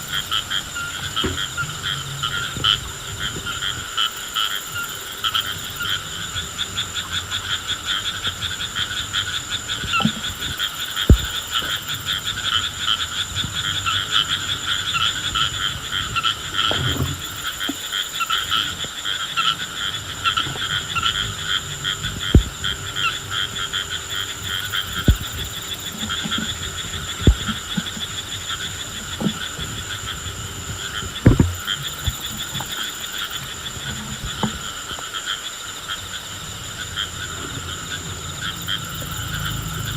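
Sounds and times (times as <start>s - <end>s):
frogs trilling: 0.0s - 39.9s
steady high whine: 0.0s - 39.9s
short low thumps: 11.1s - 11.4s, 22.2s - 22.6s, 24.9s - 26.4s, 27.2s - 28.0s, 31.2s - 32.4s.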